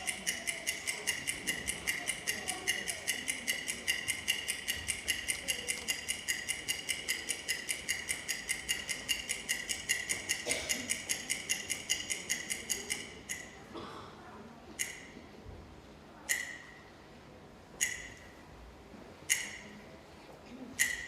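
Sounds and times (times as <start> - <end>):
rapid ticking: 0.0 - 13.5.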